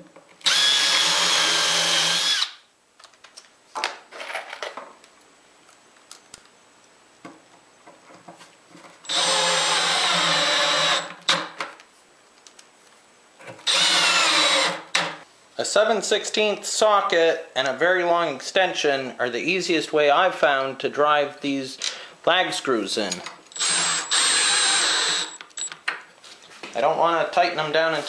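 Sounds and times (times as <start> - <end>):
cordless drill driving screws: 0.4 - 2.6, 9.1 - 11.4, 13.6 - 15.1, 23.5 - 25.7.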